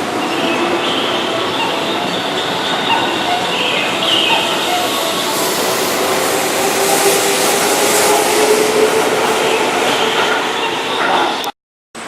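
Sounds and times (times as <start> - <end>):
train wheels rushing on rail: 0.0 - 11.5.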